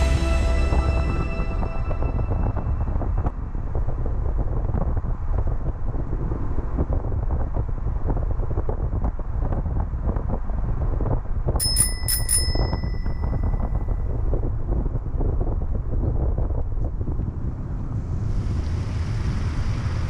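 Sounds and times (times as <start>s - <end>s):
small bell ringing: 11.6s - 14.1s.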